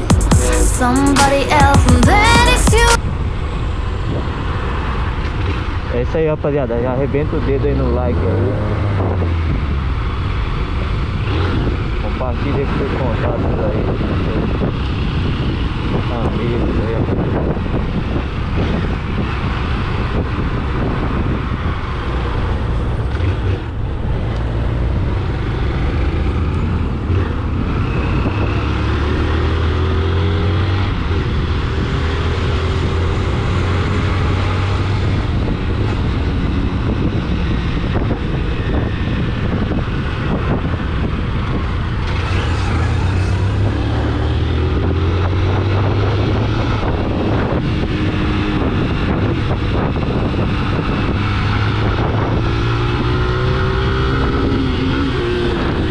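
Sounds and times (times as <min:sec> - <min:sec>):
low engine drone: 0:00.0 - 0:03.8, 0:40.8 - 0:48.0
road and wind noise: 0:00.0 - 0:55.9.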